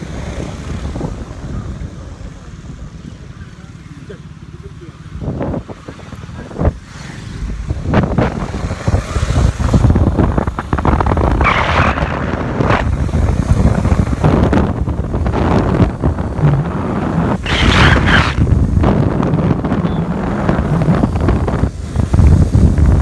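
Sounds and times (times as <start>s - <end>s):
wind buffeting microphone: 0.0s - 4.0s, 4.7s - 23.0s
motorcycle running: 0.0s - 23.0s.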